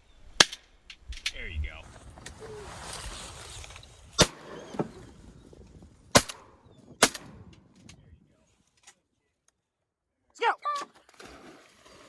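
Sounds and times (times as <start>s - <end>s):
shotgun shots: 4.2s - 4.6s, 6.1s - 7.5s.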